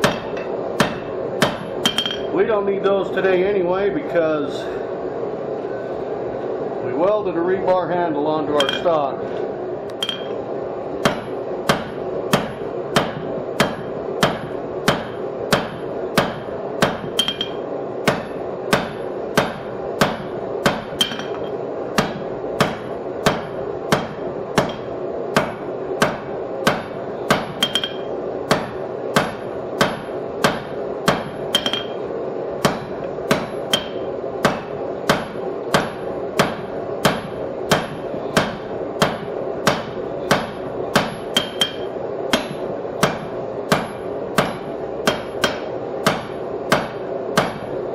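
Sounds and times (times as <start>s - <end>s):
hammer striking steel on anvil: 0.0s - 2.3s, 8.6s - 8.9s, 10.0s - 10.4s, 11.0s - 47.7s
anvil ringing: 1.8s - 2.3s, 10.0s - 10.4s, 17.2s - 18.9s, 21.0s - 21.6s, 27.4s - 28.1s, 31.5s - 32.0s, 33.3s - 35.2s, 40.4s - 42.6s.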